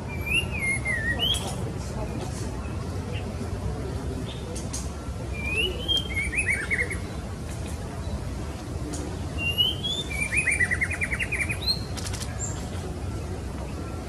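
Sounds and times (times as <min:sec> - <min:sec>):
bird whistling call: 0:09.4 - 0:11.9.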